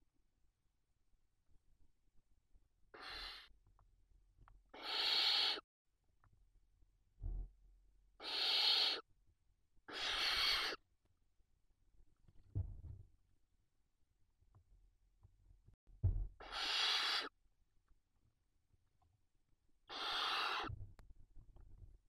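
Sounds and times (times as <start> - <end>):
owl chicks hissing calls: 2.9 - 3.5, 4.7 - 5.6, 8.2 - 9.1, 9.9 - 10.8, 16.4 - 17.3, 19.9 - 20.7
short low thump: 16.0 - 16.4.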